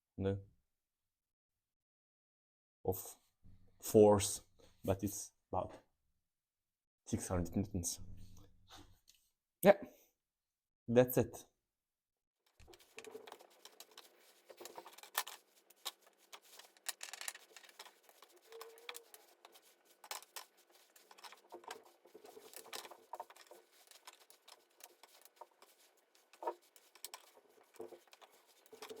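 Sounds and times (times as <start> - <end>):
rustling: 12.5 - 29.0.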